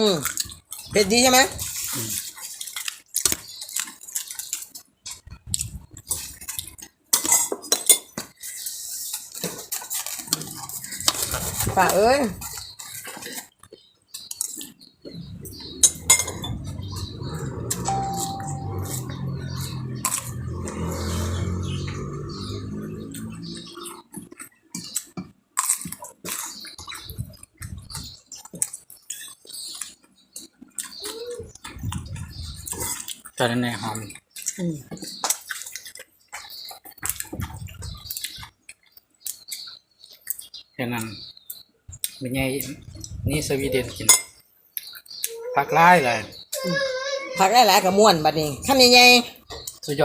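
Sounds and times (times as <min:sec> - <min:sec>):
wet chewing and mouth smacking: 0:01.6 - 0:07.2, 0:12.4 - 0:21.3, 0:21.9 - 0:43.2, 0:44.7 - 0:45.4
utensils clinking against dish: 0:06.2 - 0:11.9.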